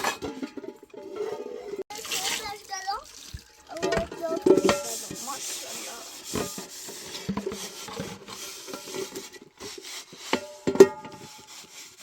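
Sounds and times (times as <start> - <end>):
scraping and rubbing on a surface: 3.8 - 12.0.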